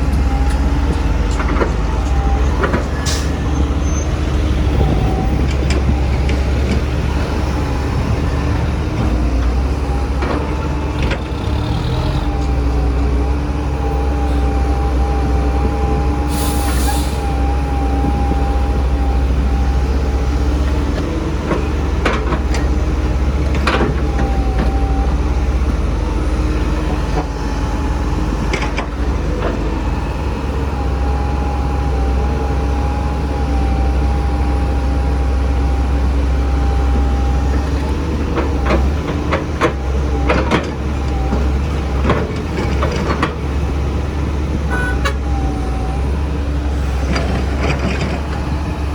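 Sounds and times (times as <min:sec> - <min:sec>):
heavy diesel engines running: 0:00.0 - 0:48.9
air hiss: 0:16.3 - 0:17.2.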